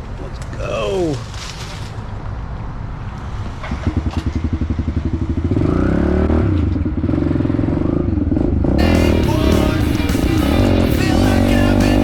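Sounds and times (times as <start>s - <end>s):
small motorbike engine revving: 5.2s - 12.0s.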